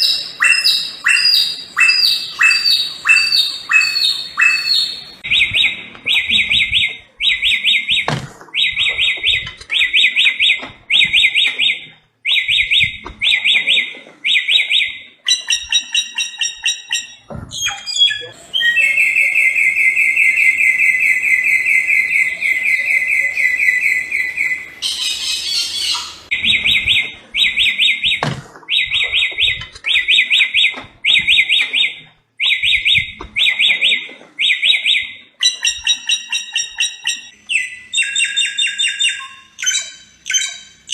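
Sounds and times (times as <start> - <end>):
long buzzy bird trill: 0.0 - 9.2, 14.3 - 30.6.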